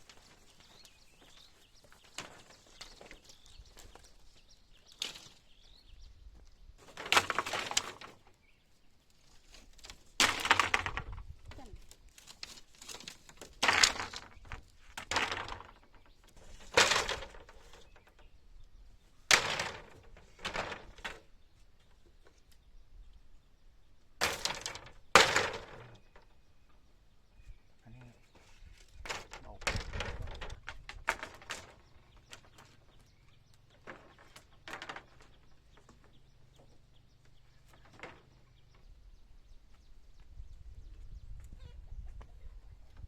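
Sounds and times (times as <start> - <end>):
branches cracking and breaking: 2.0 - 5.6, 9.2 - 15.8.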